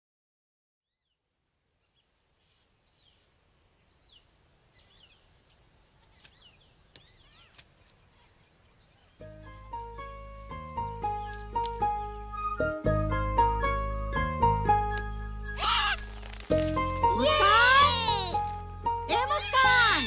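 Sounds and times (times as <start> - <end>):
background hiss: 0.9 - 12.5
bird chirps: 1.8 - 9.3, 10.8 - 11.6.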